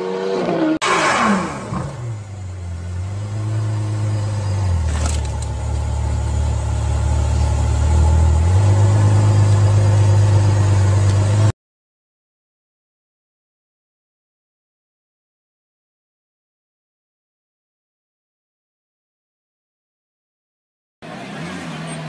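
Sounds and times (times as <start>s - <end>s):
car engine drone: 0.0s - 11.5s, 21.0s - 22.0s.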